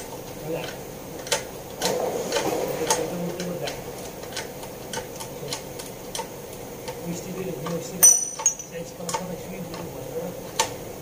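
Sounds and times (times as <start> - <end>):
sharp metallic clicks of hand tools: 8.0 - 9.2.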